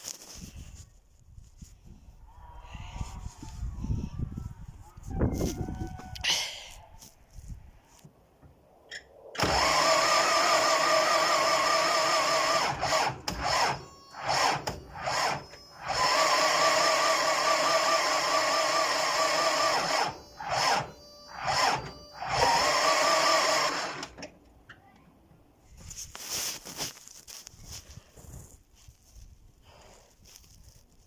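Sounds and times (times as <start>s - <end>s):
starter motor cranking engine: 9.4s - 24.3s.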